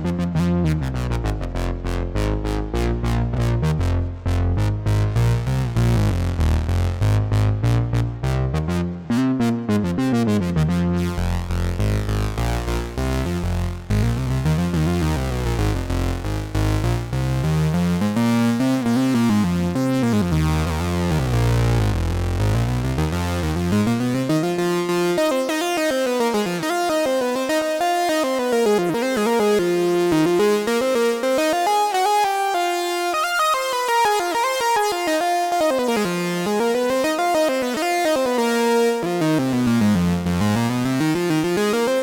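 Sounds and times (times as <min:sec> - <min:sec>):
low synth bass: 0:00.0 - 0:24.8, 0:39.0 - 0:41.6.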